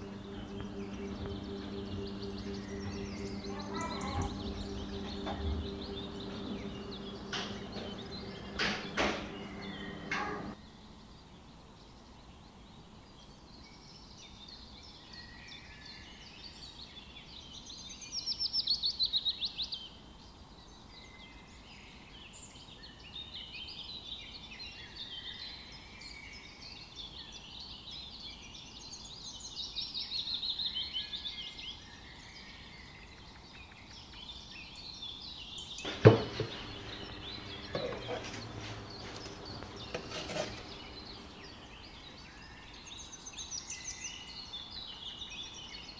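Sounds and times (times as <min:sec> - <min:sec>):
bird trills: 0:00.0 - 0:10.6
birds chirping: 0:00.0 - 0:10.6, 0:35.9 - 0:42.4
sharp knock: 0:00.3 - 0:10.6, 0:35.9 - 0:41.7
light clatters: 0:35.9 - 0:41.9.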